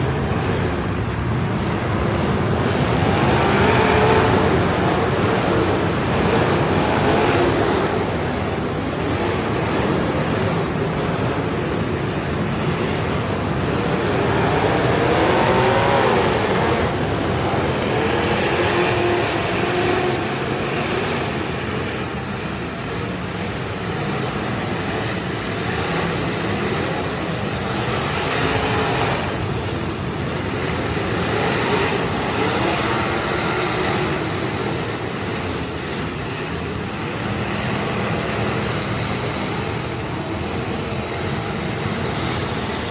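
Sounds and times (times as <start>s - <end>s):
car engines revving: 0.0s - 42.9s.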